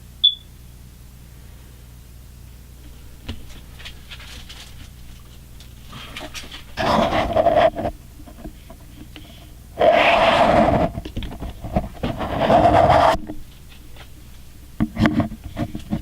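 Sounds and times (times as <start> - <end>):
low steady hum: 0.0 - 16.0
high chirp: 0.2 - 0.5.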